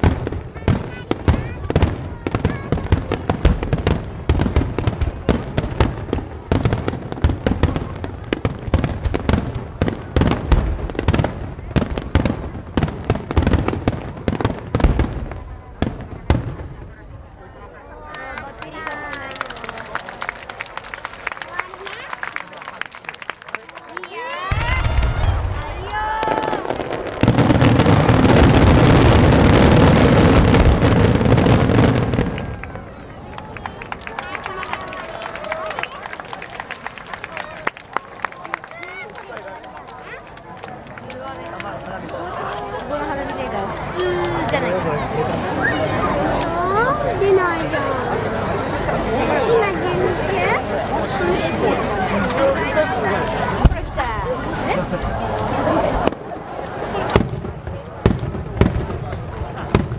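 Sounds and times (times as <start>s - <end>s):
firework shells booming: 0.0s - 17.0s, 24.5s - 32.8s, 53.6s - 54.6s, 57.0s - 59.9s
firework crackle: 0.0s - 17.3s, 24.4s - 37.6s, 53.2s - 59.9s.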